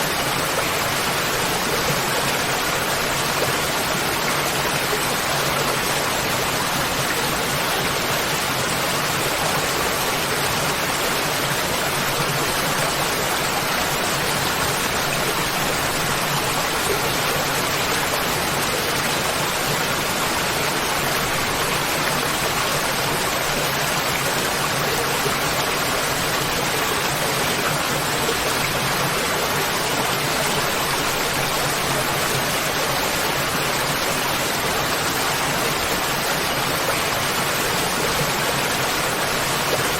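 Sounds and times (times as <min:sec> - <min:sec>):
waterfall crashing: 0:00.0 - 0:39.9.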